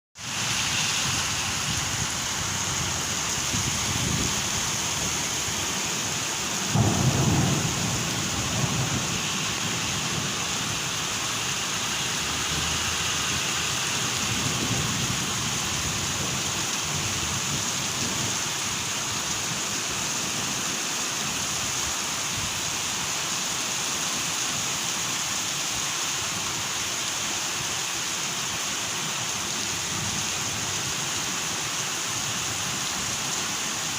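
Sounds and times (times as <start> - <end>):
heavy rain pouring: 0.2 - 33.9
thunder clap and rumble: 6.6 - 10.8.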